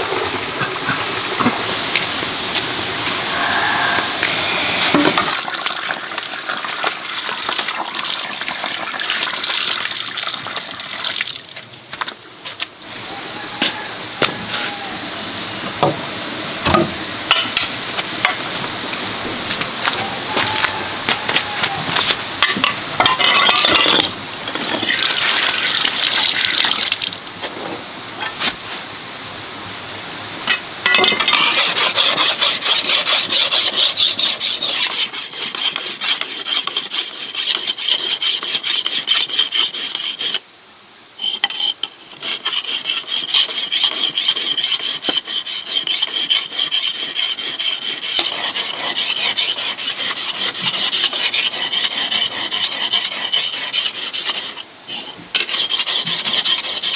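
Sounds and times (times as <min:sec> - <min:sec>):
tool rasping against wood: 0:31.3 - 0:40.4, 0:41.5 - 0:54.6, 0:55.4 - 0:56.9.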